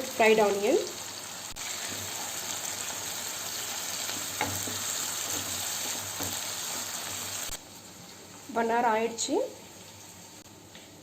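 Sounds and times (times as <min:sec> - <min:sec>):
vegetables sizzling in oil: 0:00.0 - 0:10.8
spoon stirring in pan: 0:01.6 - 0:07.3.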